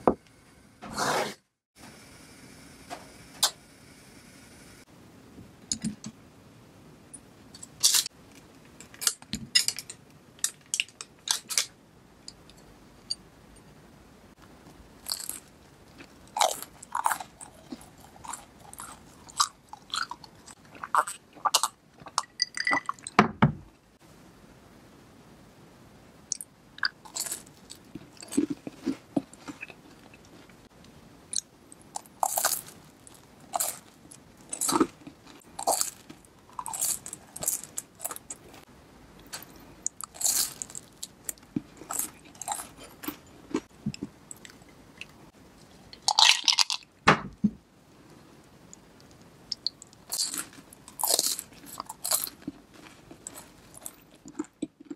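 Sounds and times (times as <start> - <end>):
crunching toast sticks: 15.0 - 22.2, 27.0 - 30.4, 32.0 - 38.6, 39.8 - 43.7, 46.0 - 46.8, 49.5 - 54.9.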